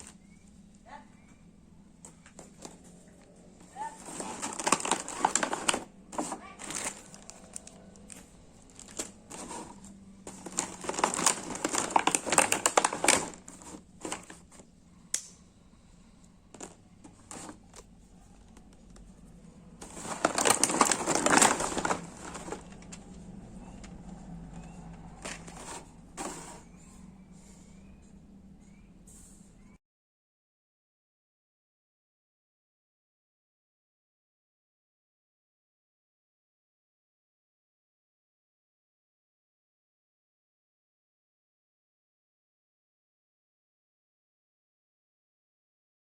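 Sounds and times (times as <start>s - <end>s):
packaging crinkling and rustling: 3.8s - 14.7s, 16.5s - 26.6s.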